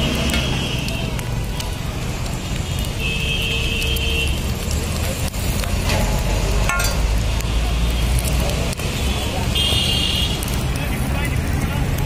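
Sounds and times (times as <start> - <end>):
paratha sizzling on a griddle: 0.0 - 12.0
street traffic rumble: 0.0 - 12.0
metallic clink: 6.7 - 7.1.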